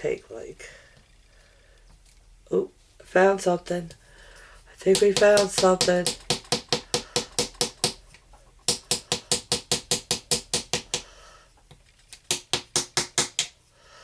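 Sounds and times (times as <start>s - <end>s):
hammer tapping a chisel: 4.9s - 11.1s, 12.2s - 13.6s.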